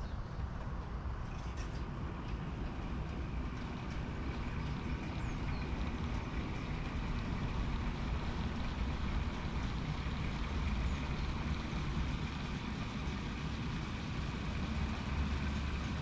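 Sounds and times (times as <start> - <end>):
train rumbling: 0.0 - 16.0
faint bird chirp: 4.6 - 5.8.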